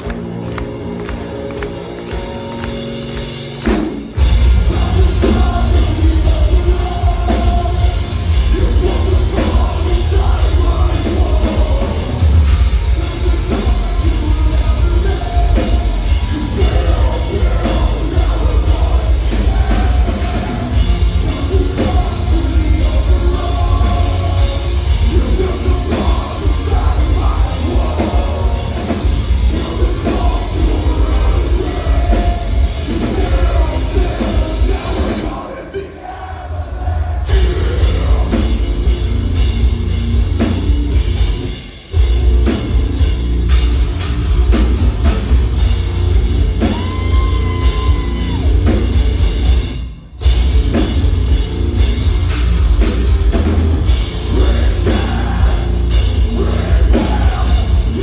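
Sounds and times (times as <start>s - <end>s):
heavy distorted guitars: 0.0s - 58.0s
metalcore band playing live: 0.0s - 58.0s
pounding drums: 3.4s - 35.4s, 36.7s - 58.0s
shouted and sung vocals: 4.2s - 38.9s, 46.4s - 49.2s, 53.8s - 58.0s.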